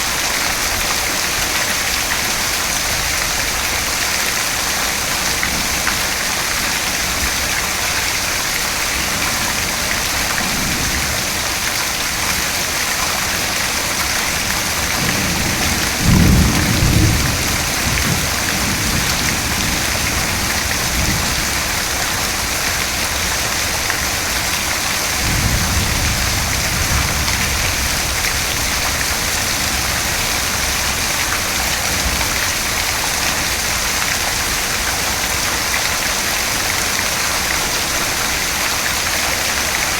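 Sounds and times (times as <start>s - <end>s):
heavy rain falling: 0.0s - 39.9s
thunder rumbling: 14.3s - 22.5s, 25.1s - 32.3s.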